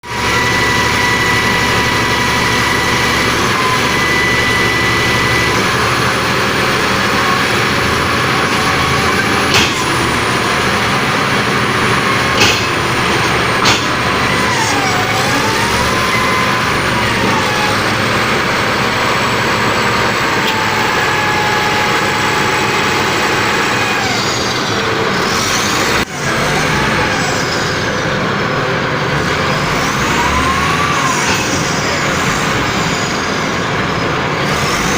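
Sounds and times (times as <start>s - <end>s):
bulldozer engine running: 0.0s - 34.9s
sharp knocks: 9.4s - 10.0s, 12.3s - 12.9s, 13.6s - 14.1s.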